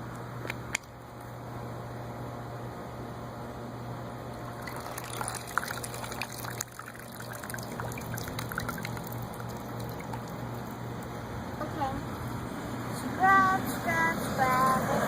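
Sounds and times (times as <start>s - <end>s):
splashes and drips: 4.4s - 11.2s
water pouring and trickling: 4.4s - 11.2s.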